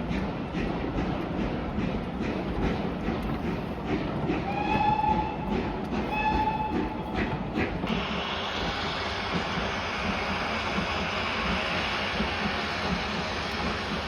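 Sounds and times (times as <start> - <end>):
train rumbling and clanking: 0.0 - 14.0
steam hissing: 0.2 - 14.0
steam locomotive whistle blasts: 4.5 - 5.5, 6.1 - 7.0.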